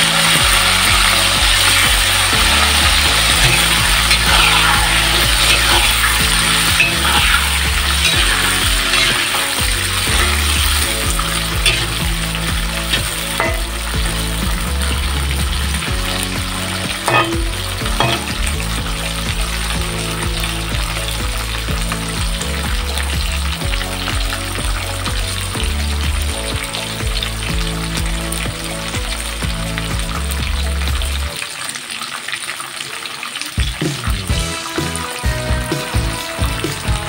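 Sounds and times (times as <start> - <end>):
green beans sizzling in oil: 0.0 - 37.0
metal spatula scraping wok: 2.7 - 14.4, 17.0 - 18.6.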